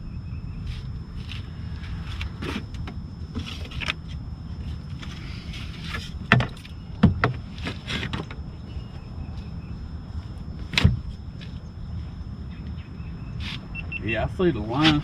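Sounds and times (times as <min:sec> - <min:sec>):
knocks and clunks on a boat: 0:06.3 - 0:07.4.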